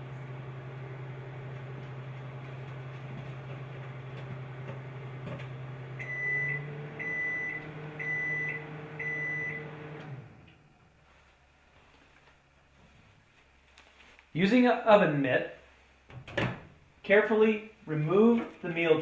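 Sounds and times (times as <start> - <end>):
microwave oven humming: 0.0 - 10.8
microwave timer beeps: 6.0 - 10.1.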